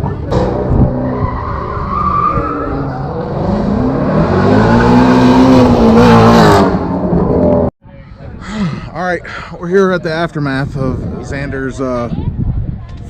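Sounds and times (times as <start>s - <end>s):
car engine revving: 0.3s - 7.7s.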